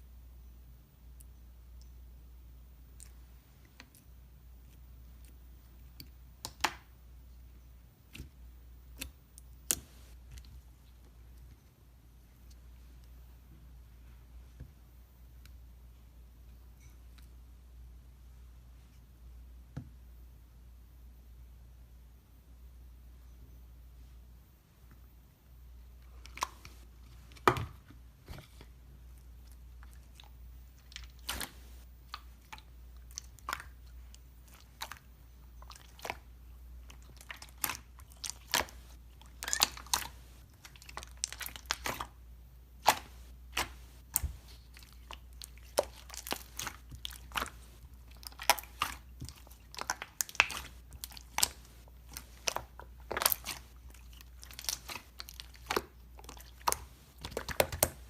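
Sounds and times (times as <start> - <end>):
crunches and crackles: 42.8 - 58.0.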